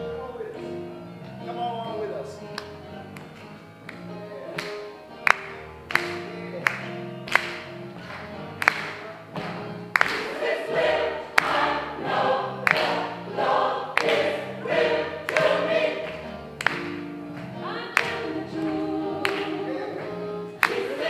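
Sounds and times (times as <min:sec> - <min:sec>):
gospel choir singing: 0:09.2 - 0:21.0.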